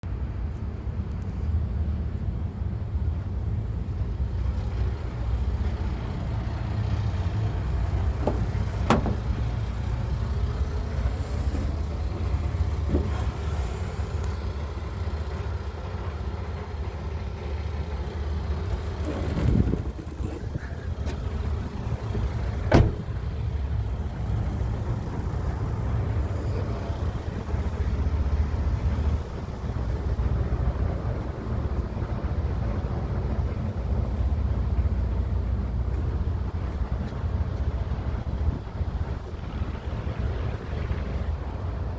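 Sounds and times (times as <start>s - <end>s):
truck diesel engine idling: 1.7s - 41.9s
short knocks: 8.1s - 9.6s.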